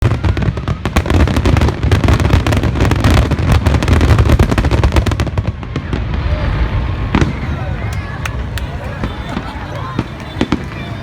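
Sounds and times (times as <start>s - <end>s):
fireworks crackling bangs: 0.0s - 11.0s
continuous low rumble: 5.2s - 11.0s.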